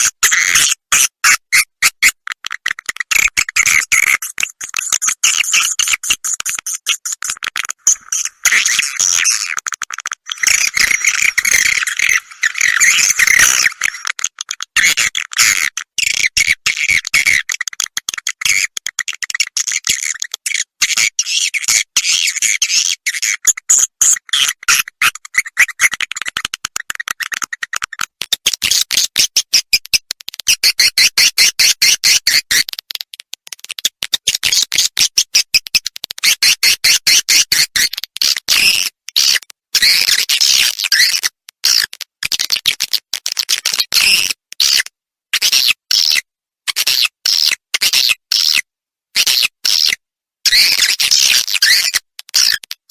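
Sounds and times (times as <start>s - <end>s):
rapid high twittering chirps: 3.2s - 9.5s, 10.2s - 14.2s.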